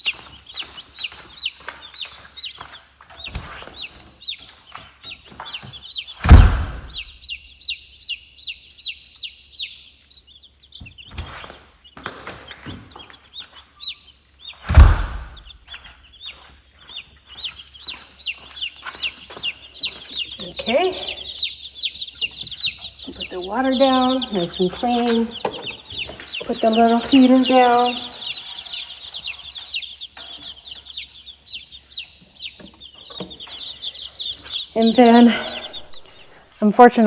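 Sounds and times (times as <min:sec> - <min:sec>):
chicks peeping: 0:00.0 - 0:37.0
loud knocks: 0:06.2 - 0:07.1, 0:14.7 - 0:15.6.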